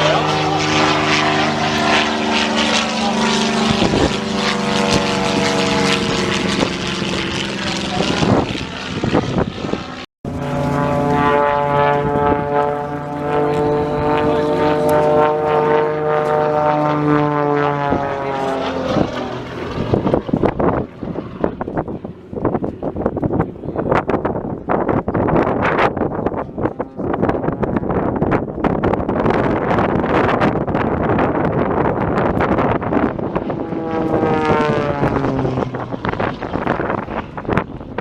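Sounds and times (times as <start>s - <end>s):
light aircraft engine droning: 0.0s - 38.0s.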